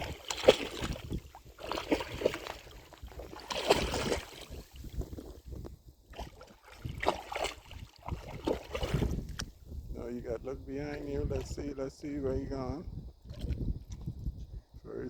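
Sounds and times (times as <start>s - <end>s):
water washing and splashing: 0.0s - 5.2s, 6.1s - 9.5s
wind noise on microphone: 0.0s - 15.0s.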